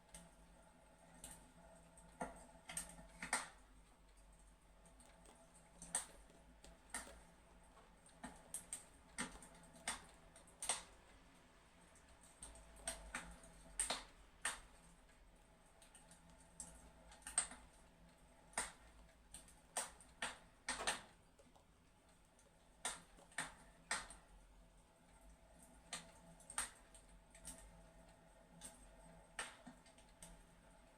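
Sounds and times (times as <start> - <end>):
low steady background: 0.0 - 30.9
fireplace crackling: 2.0 - 24.4.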